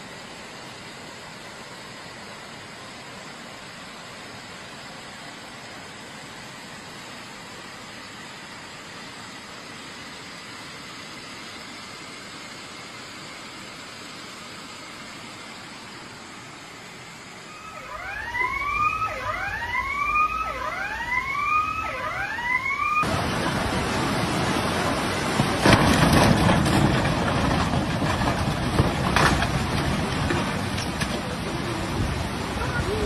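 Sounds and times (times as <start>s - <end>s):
floodwater torrent rushing: 0.0s - 33.0s
siren rising sweeps: 17.5s - 23.1s.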